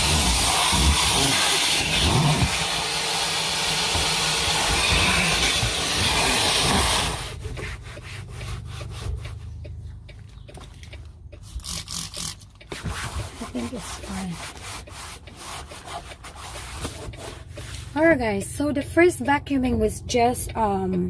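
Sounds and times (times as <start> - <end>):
vacuum cleaner running: 0.0 - 7.2.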